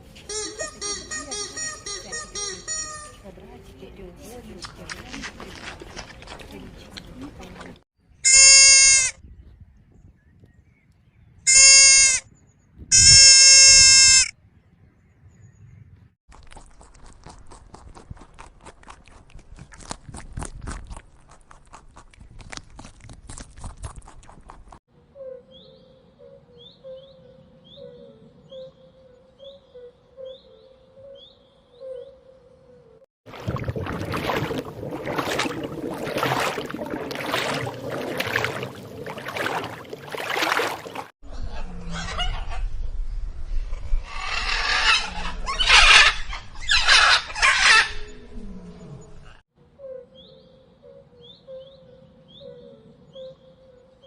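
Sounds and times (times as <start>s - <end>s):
bird and poultry calls: 44.1s - 48.3s.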